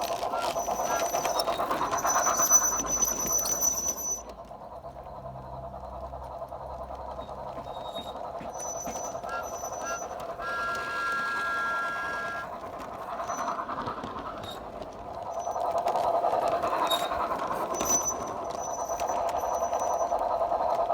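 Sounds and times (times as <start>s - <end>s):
model steam engine chuffing: 0.0s - 20.9s
train whistle: 0.1s - 4.3s, 7.8s - 14.6s.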